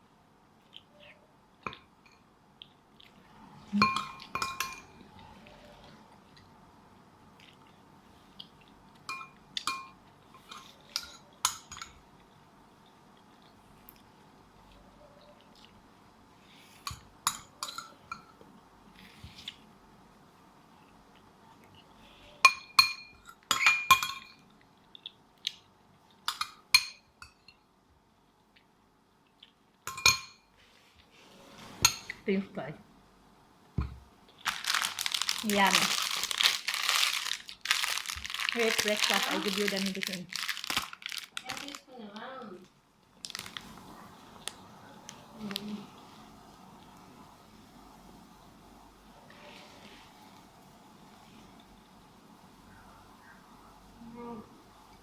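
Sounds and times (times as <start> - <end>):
spoon clinking against a dish: 3.8 - 5.0, 9.1 - 12.0, 22.4 - 24.4, 29.9 - 30.5.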